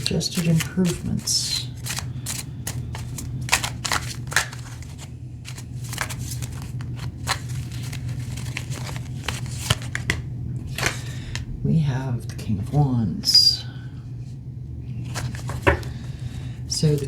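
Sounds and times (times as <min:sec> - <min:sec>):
cards shuffled by hand: 0:00.0 - 0:10.2, 0:15.0 - 0:15.8
steady low hum: 0:00.0 - 0:17.0.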